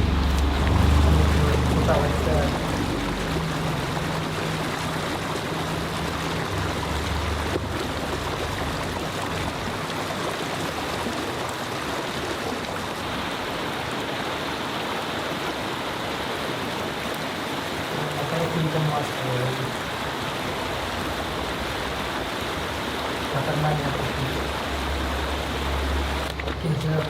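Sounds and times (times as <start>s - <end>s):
low hum: 0.0s - 10.2s
water flowing: 0.0s - 27.0s.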